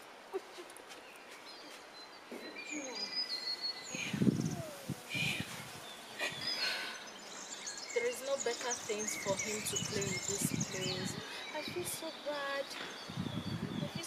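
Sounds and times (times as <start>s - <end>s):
outdoor background noise: 0.0s - 14.0s
small birds chirping and singing: 0.0s - 14.0s.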